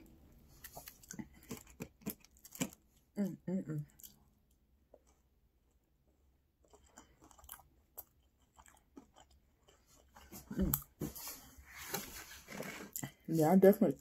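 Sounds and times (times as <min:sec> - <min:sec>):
person chewing food: 0:00.1 - 0:03.2, 0:03.9 - 0:11.1.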